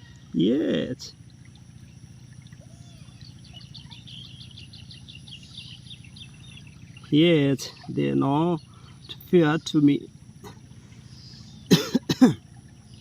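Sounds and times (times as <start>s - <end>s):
low outdoor background noise: 0.0s - 13.0s
bird chirping rapidly: 1.7s - 11.8s.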